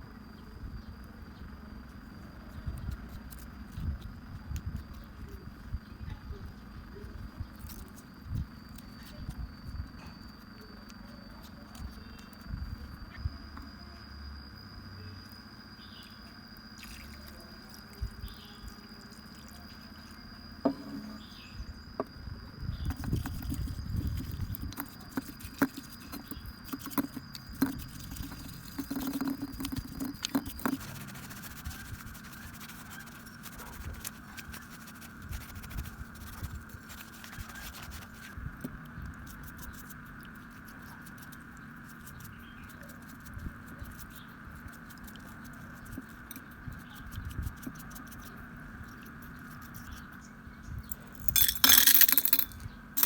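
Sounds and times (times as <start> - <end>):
scratching: 22.7 - 50.3, 50.9 - 52.7.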